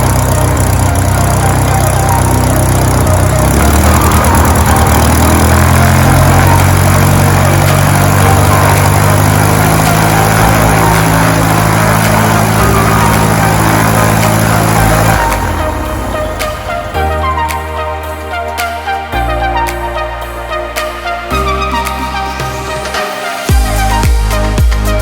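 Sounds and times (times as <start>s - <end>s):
piston aircraft engine running: 0.0s - 18.6s.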